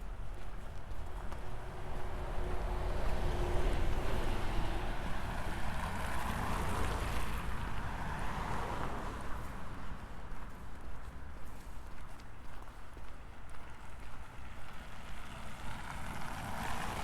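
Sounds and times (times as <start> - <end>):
vehicle passing by: 1.6 - 9.6.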